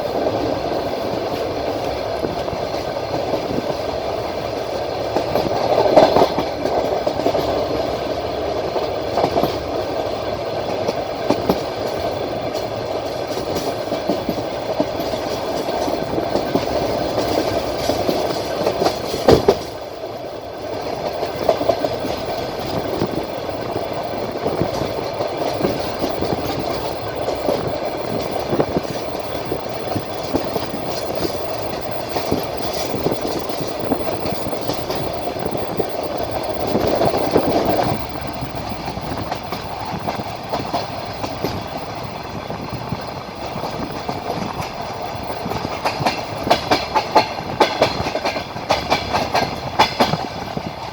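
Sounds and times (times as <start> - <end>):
train wheels rumbling on rails: 0.0 - 50.9
wheels clicking over rail joints: 0.0 - 50.9.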